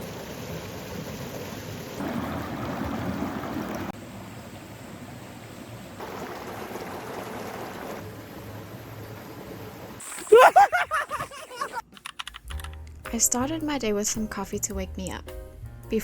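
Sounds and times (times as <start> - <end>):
stream flowing over rocks: 0.0 - 4.0, 6.0 - 10.2.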